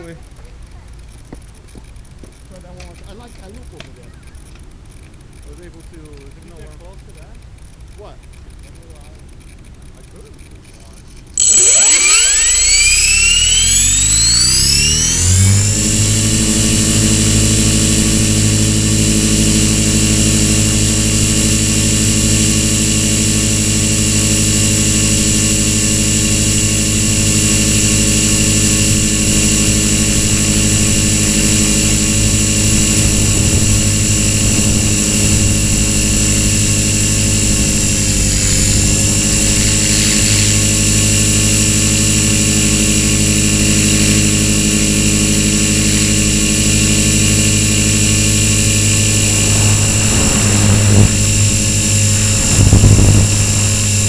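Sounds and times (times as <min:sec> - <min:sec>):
rc helicopter whine: 0:00.0 - 0:54.0.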